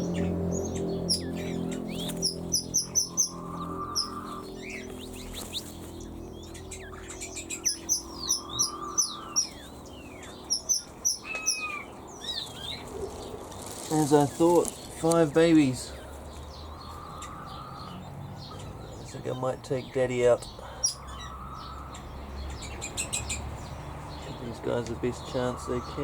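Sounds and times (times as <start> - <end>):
low steady hum: 0.0 - 12.9
small birds chirping: 0.0 - 26.0.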